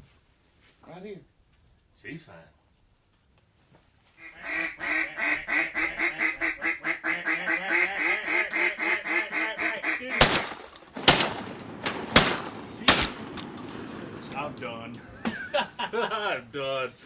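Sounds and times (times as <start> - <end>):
duck call quacks: 4.2 - 10.4
shotgun shots: 10.1 - 15.1.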